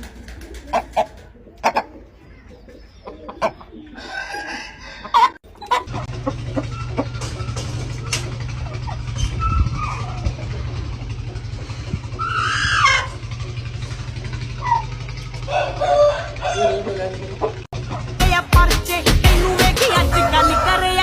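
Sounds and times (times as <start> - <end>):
rooster crowing: 4.0 - 5.4, 15.4 - 17.0, 20.0 - 21.0
steady low hum: 6.0 - 15.6.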